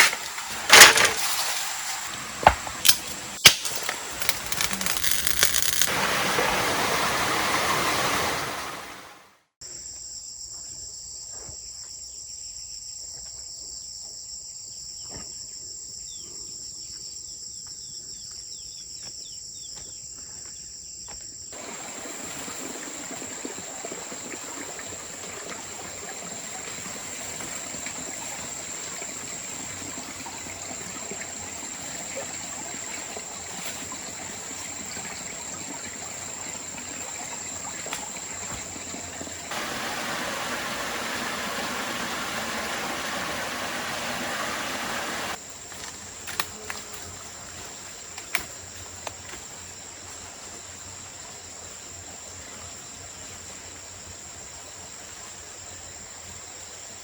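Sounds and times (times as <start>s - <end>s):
insects trilling: 0.0s - 6.6s, 9.6s - 57.0s
water hissing: 0.0s - 9.2s, 21.6s - 30.0s, 39.4s - 45.4s.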